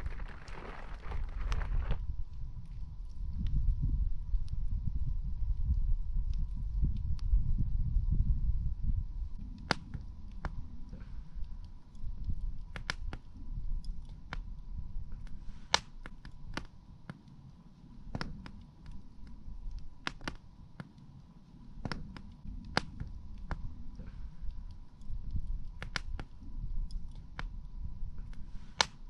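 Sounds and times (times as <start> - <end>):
campfire crackling: 0.0 - 3.2, 9.3 - 29.0
low rumble: 0.0 - 12.8.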